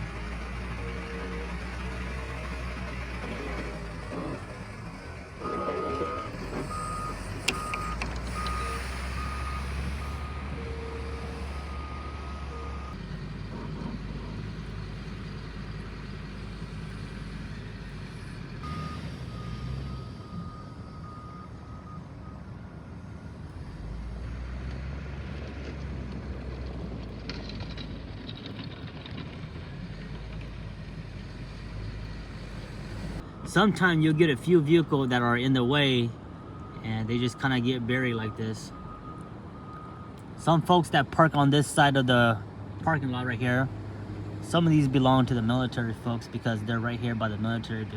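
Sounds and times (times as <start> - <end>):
heavy engine rumble: 0.0 - 47.9
reversing alarm beeping: 5.4 - 13.0, 18.6 - 22.7, 36.4 - 40.7.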